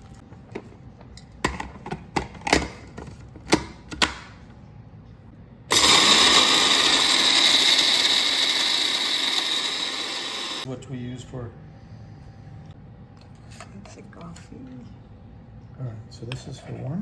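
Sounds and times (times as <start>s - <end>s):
coffee grinder grinding: 5.7s - 10.7s.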